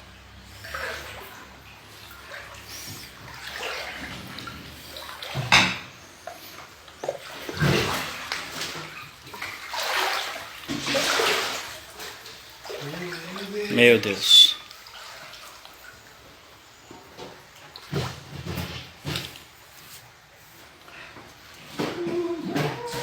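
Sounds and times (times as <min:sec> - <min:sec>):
floodwater splashing and sloshing: 0:00.0 - 0:23.0.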